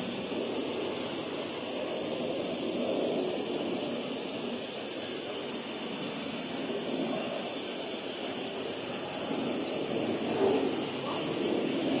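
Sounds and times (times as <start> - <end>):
distant jet engine rumble: 0.0 - 12.0
high hiss: 0.0 - 12.0.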